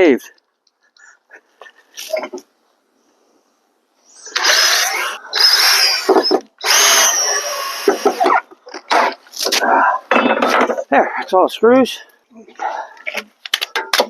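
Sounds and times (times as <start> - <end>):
power drill driving screws: 4.2 - 8.5.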